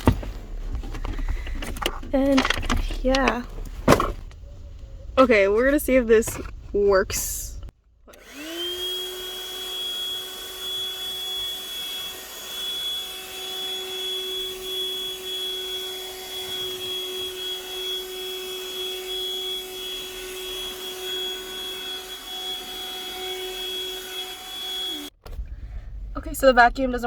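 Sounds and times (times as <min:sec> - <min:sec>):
small vacuum cleaner running: 0:08.1 - 0:25.2.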